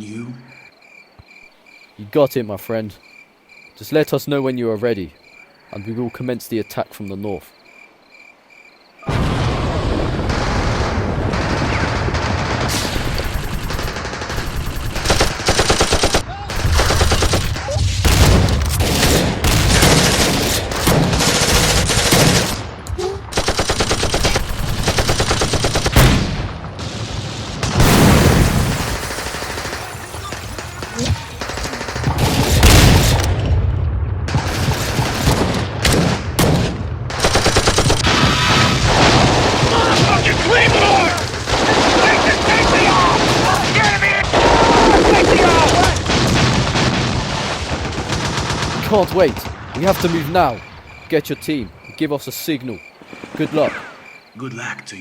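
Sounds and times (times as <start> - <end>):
machine-gun and rifle fire: 10.2 - 22.7, 23.3 - 33.5, 34.3 - 50.5.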